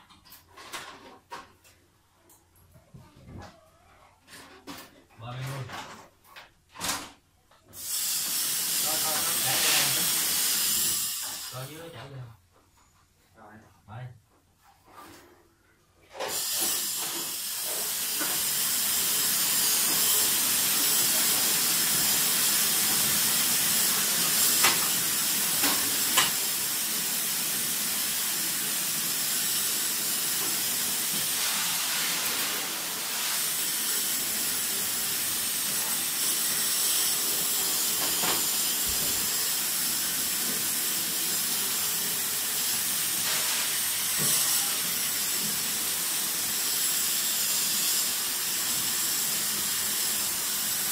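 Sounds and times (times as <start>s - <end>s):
high-pressure water jet hissing: 7.8s - 11.8s, 16.2s - 50.9s.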